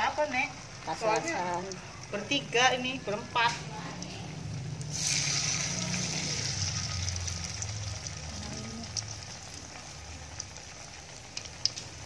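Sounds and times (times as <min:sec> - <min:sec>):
deep-frying sizzle: 0:00.0 - 0:12.0.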